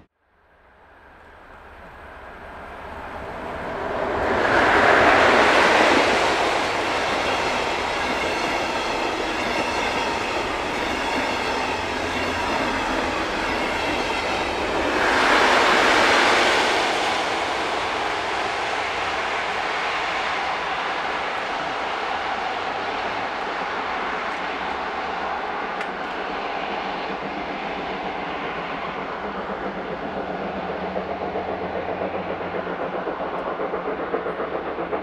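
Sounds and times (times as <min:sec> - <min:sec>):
steam train passing: 0:00.0 - 0:35.0.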